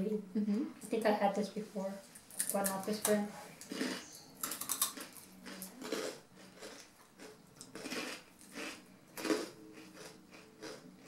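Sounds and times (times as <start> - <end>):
rice crackers being chewed: 3.6 - 11.0.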